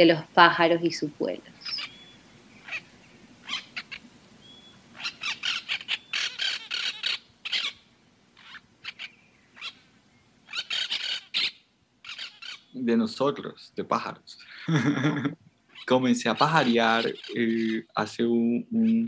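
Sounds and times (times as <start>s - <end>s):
birds squawking and chirping: 1.4s - 12.9s, 15.6s - 19.0s.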